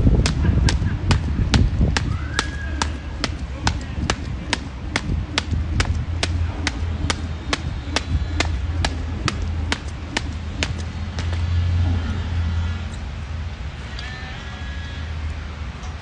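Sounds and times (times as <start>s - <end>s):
jump rope slapping ground: 0.0s - 11.6s
steady low hum: 0.0s - 13.8s.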